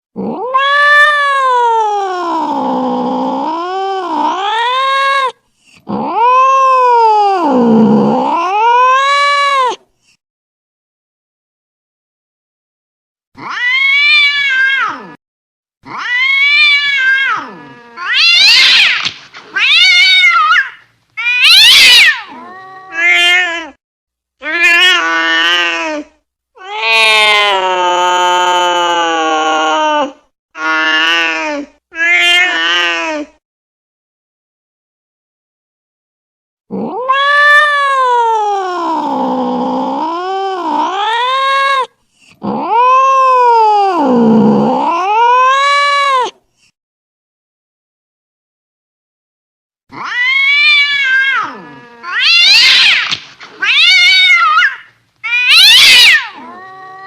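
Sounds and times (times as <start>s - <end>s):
cat caterwauling: 0.2s - 9.8s, 13.4s - 15.2s, 15.8s - 23.8s, 24.4s - 33.3s, 36.7s - 46.4s, 49.9s - 57.0s.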